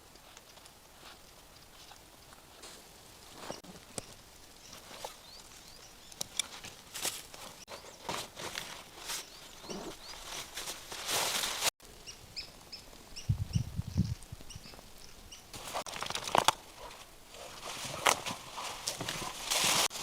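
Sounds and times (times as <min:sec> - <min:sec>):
rustling and scuffing: 0:00.0 - 0:03.8, 0:06.4 - 0:11.7, 0:15.6 - 0:20.0
small bird chirping: 0:03.4 - 0:06.2.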